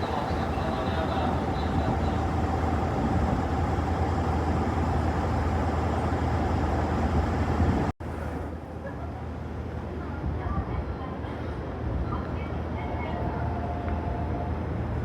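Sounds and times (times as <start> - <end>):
station noise: 0.0 - 7.4
train low rumble: 0.0 - 15.0.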